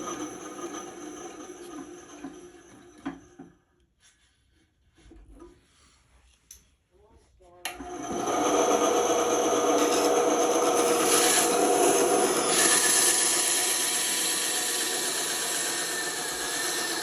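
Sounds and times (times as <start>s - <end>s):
band saw cutting wood: 7.8s - 17.0s.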